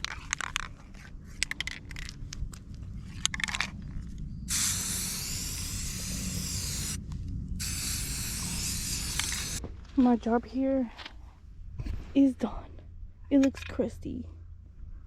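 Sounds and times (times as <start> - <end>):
aerosol spray hissing: 4.5 - 7.0, 7.6 - 9.6
spray can clicks and rattles: 4.5 - 7.0, 7.6 - 9.6.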